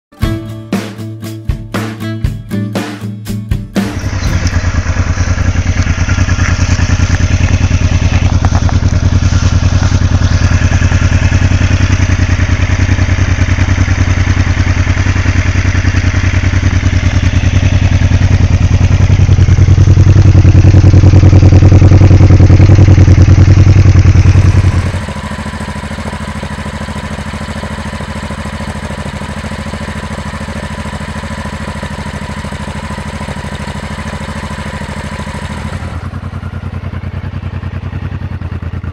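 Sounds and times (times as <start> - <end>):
motorcycle engine running: 3.8 - 38.9.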